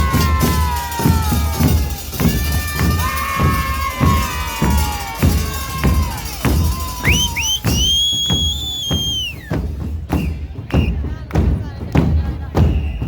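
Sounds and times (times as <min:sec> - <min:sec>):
bass drums and cymbal beating: 0:00.0 - 0:13.0
whistle blasts: 0:07.0 - 0:11.0, 0:12.7 - 0:13.0.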